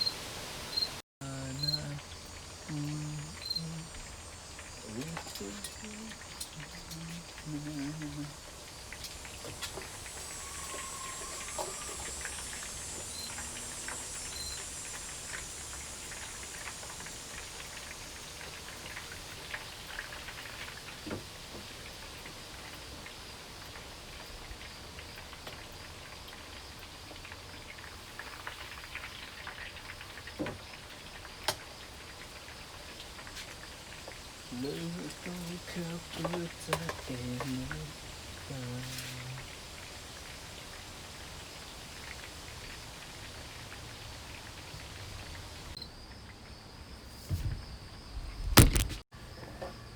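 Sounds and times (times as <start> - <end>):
chicken sizzling in a pan: 0.0 - 45.8.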